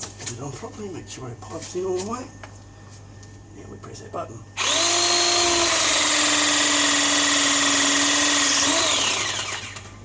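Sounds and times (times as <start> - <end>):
pipe press tool motor whine: 4.6 - 10.0.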